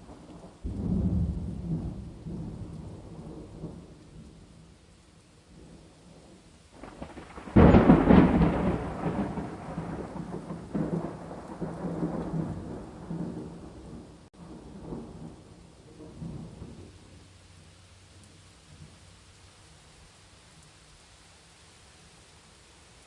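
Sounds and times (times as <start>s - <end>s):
steady rain: 0.0s - 23.0s
thunder clap and rumble: 0.1s - 4.4s, 5.5s - 17.1s.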